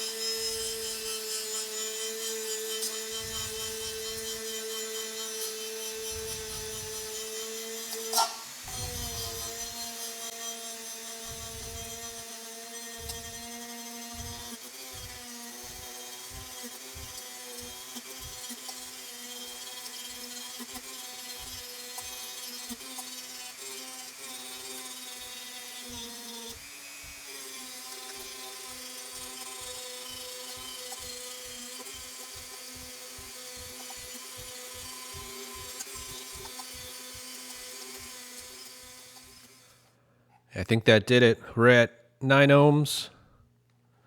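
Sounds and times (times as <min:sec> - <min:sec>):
rotary tool grinding metal: 0:00.0 - 0:39.8.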